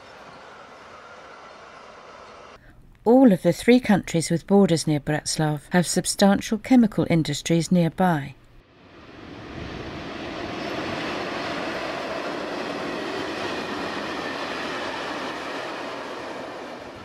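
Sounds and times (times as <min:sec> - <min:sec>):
train rolling past: 0:00.0 - 0:02.6, 0:08.6 - 0:17.0.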